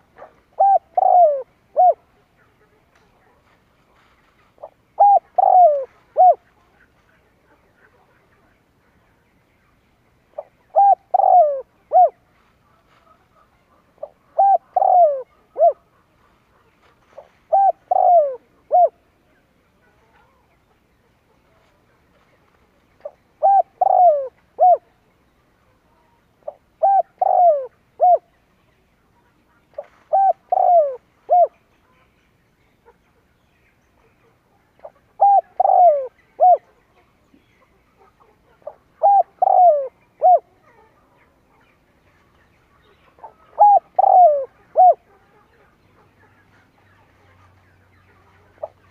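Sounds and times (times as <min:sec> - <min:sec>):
dove cooing: 0:00.0 - 0:02.2, 0:04.6 - 0:06.6, 0:10.4 - 0:12.2, 0:13.8 - 0:16.2, 0:17.2 - 0:19.0, 0:23.0 - 0:25.0, 0:26.4 - 0:28.3, 0:29.8 - 0:31.6, 0:34.8 - 0:36.7, 0:38.0 - 0:40.8, 0:43.2 - 0:45.2, 0:48.6 - 0:48.9.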